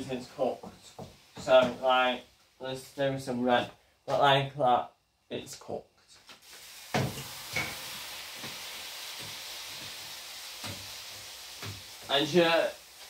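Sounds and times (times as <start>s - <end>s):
meat sizzling in a pan: 6.4s - 13.0s.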